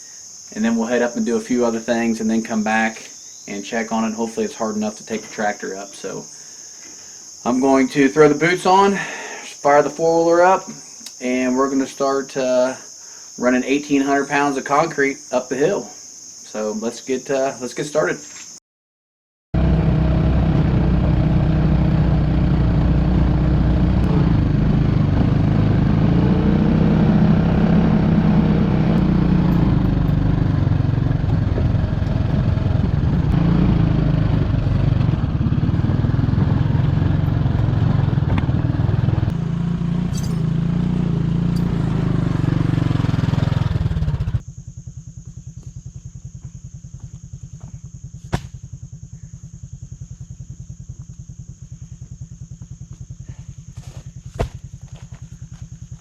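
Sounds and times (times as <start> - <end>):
atv engine running: 19.6 - 56.0
steady low hum: 44.4 - 56.0.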